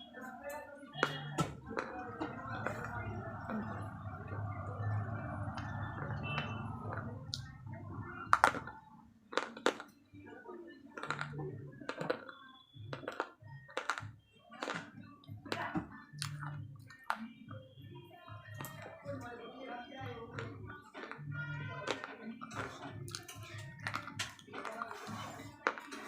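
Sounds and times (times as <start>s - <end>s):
slate pencils crunching in mouth: 11.0s - 11.3s, 12.9s - 14.0s, 21.8s - 26.0s
soft chewing: 20.2s - 26.0s.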